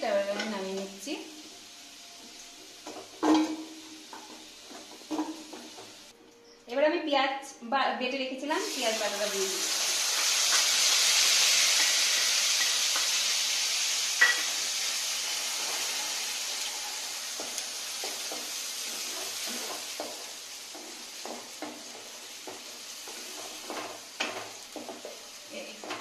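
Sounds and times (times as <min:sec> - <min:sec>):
paste sizzling in hot oil: 0:08.6 - 0:25.6.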